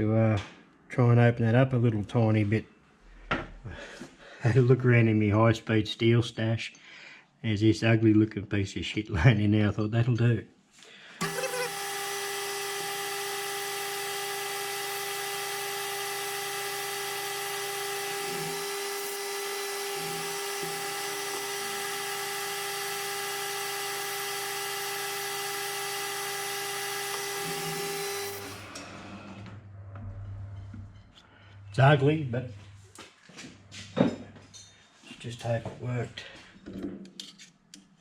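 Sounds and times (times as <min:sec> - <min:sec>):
mill-drill spindle whine: 0:11.2 - 0:29.6.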